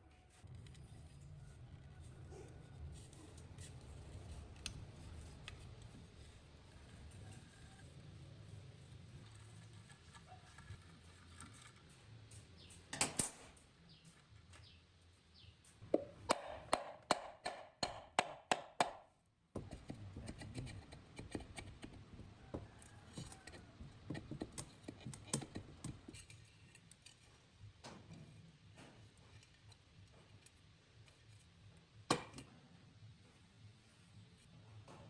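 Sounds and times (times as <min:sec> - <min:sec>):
sharp knock on metal: 0:16.0 - 0:19.0.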